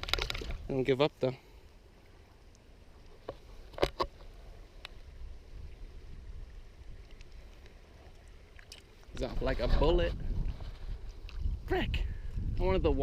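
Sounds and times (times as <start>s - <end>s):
water lapping: 0.0s - 11.6s
wind rumble on microphone: 4.4s - 7.4s, 9.1s - 13.0s.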